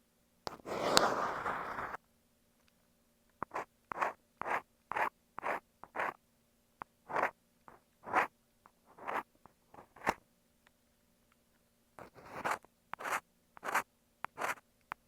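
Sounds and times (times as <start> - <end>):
ear pick scraping a microphone: 0.5 - 2.0, 7.1 - 7.3, 8.9 - 10.2, 12.0 - 13.8.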